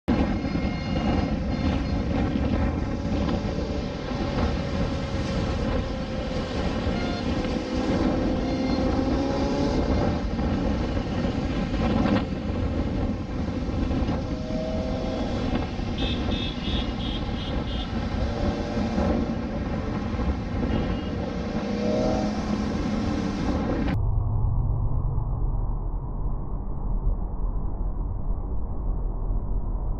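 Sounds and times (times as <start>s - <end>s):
wind rush on microphone: 0.1s - 29.9s
motorcycle engine: 0.2s - 24.0s.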